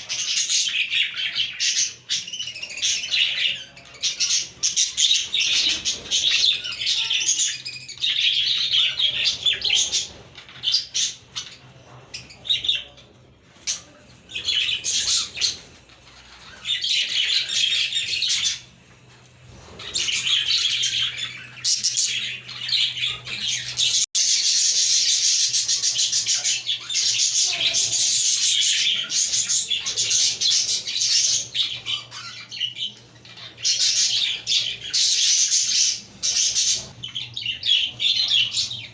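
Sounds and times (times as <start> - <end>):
budgerigars chirping and warbling: 0.0 - 38.9.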